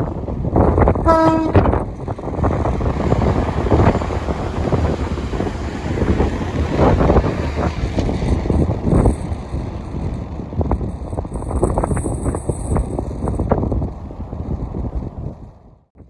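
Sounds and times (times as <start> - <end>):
trains passing close by: 0.0 - 14.8
wind buffeting on microphone: 0.0 - 16.0
train horn blast: 1.0 - 1.8.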